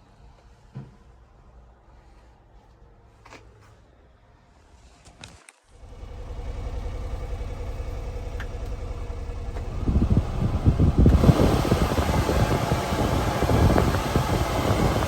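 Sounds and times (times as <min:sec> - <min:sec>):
small truck engine running: 0:05.8 - 0:15.0.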